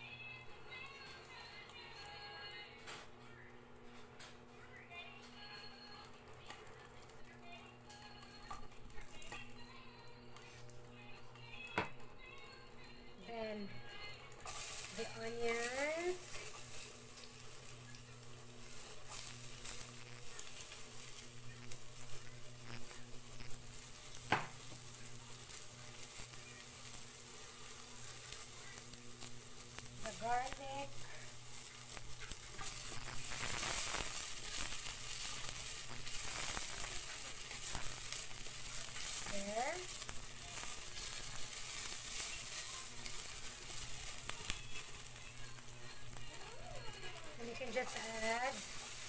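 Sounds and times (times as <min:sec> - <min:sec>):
onions sizzling in oil: 0:13.2 - 0:49.0.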